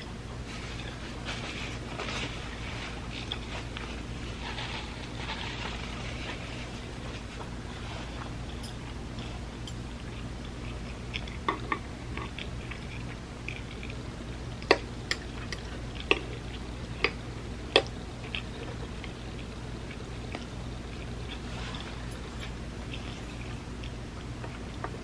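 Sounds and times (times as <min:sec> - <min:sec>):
steady low hum: 0:00.0 - 0:25.0
chewing mouth clicks and smacks: 0:08.2 - 0:21.4.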